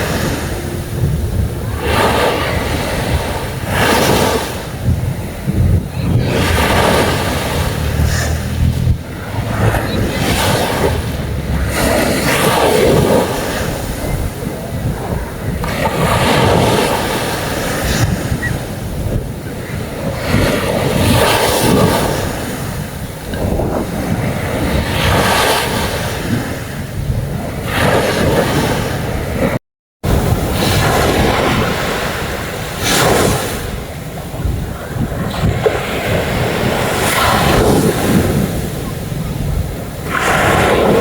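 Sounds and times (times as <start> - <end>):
sea waves breaking on a beach: 0.0 - 41.0
wind on microphone: 0.0 - 41.0.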